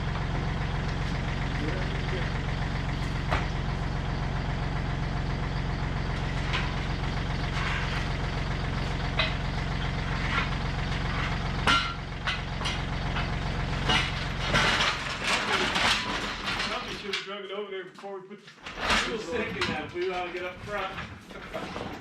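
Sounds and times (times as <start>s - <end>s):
low mechanical hum: 0.0s - 16.9s
clanks and knocks: 0.3s - 3.8s, 6.1s - 17.4s, 18.6s - 22.0s.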